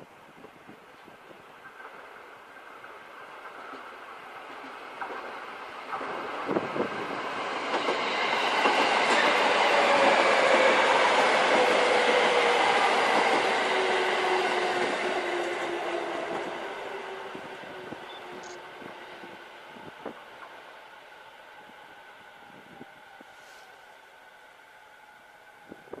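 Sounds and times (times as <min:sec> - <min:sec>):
train wheels clattering on rails: 0:00.7 - 0:16.5.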